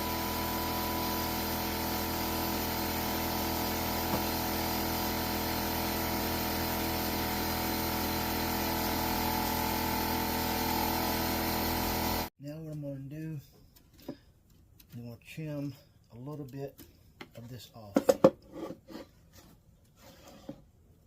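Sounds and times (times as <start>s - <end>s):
steady machine hum: 0.0s - 12.3s.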